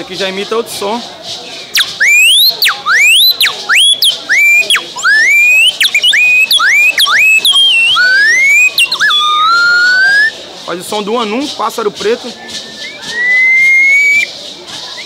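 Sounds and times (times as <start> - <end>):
bird-call whistle glides: 1.7 - 10.3, 12.4 - 14.3.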